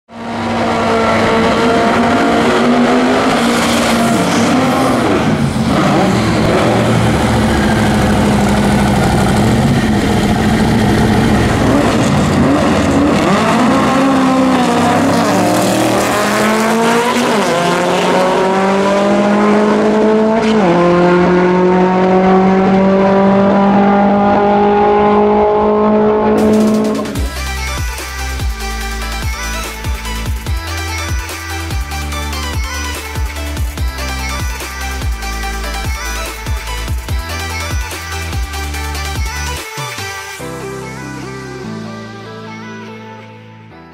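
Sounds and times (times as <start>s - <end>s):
car engine revving hard: 0.1s - 27.7s.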